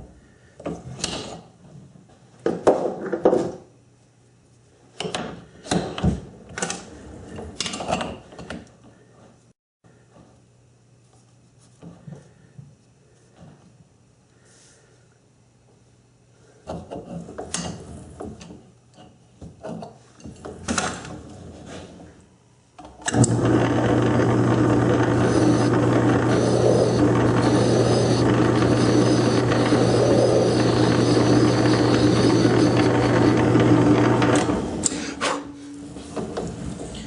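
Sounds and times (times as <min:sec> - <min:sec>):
lathe motor running: 0:23.1 - 0:35.0.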